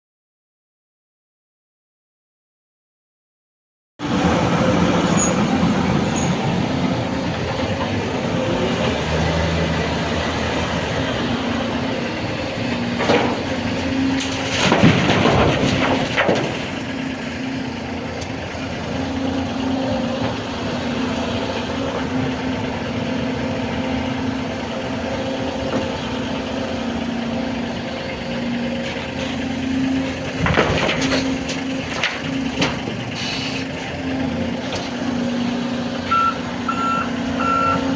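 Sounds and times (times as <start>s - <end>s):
excavator diesel engine humming: 4.0s - 37.9s
engine clatter bursts: 12.7s - 17.4s, 28.8s - 34.0s.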